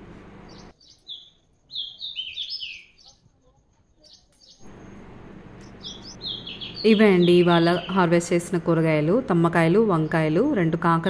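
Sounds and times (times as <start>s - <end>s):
small bird chirping: 0.5s - 8.1s.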